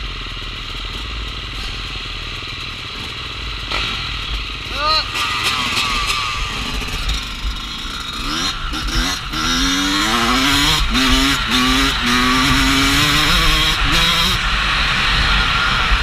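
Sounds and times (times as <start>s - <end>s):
dirt bike engine revving: 0.8s - 16.0s.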